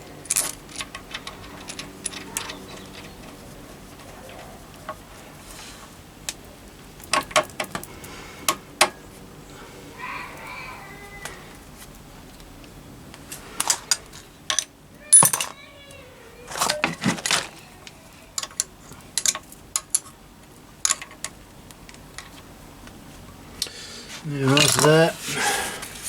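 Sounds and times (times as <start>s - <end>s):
metal tools clinking: 0.0s - 5.0s, 13.6s - 15.6s, 16.5s - 20.1s, 24.3s - 25.5s.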